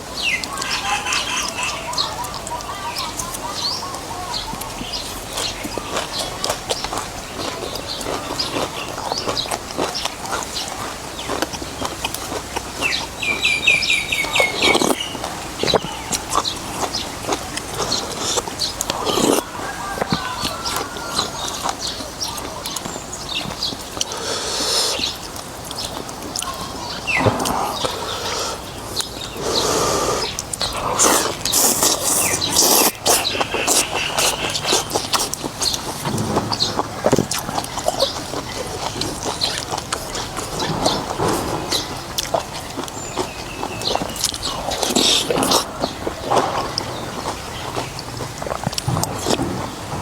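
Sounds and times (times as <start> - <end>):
bird chirping: 0.1 - 12.0, 12.7 - 48.1
chewing and slurping noodles: 4.6 - 50.0.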